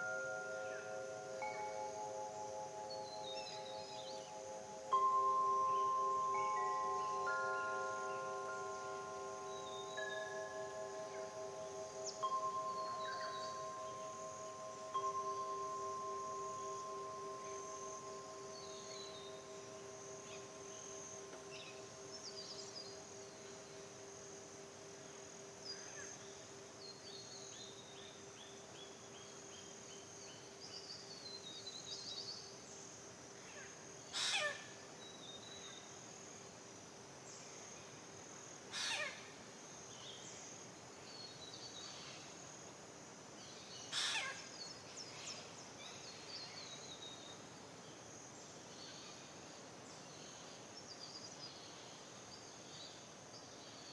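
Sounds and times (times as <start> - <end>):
birds chirping and trilling: 0.0 - 23.9, 43.8 - 46.7
singing bowl ringing: 0.0 - 24.1
steady high hiss: 0.0 - 53.9.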